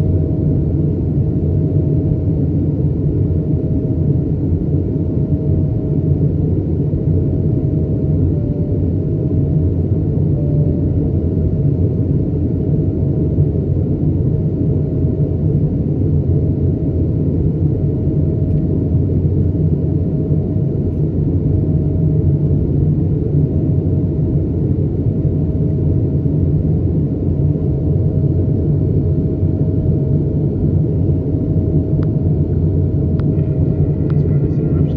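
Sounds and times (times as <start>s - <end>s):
airplane cabin engine rumble: 0.0s - 34.9s
thin steady whine: 6.0s - 12.6s, 30.1s - 34.9s.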